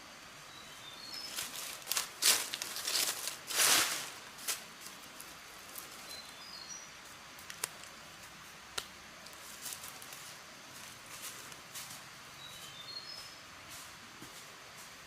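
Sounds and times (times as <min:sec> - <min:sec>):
rustle: 0:00.0 - 0:15.0
steady high hiss: 0:00.0 - 0:15.0
bird chirps: 0:06.0 - 0:06.9, 0:12.4 - 0:13.4.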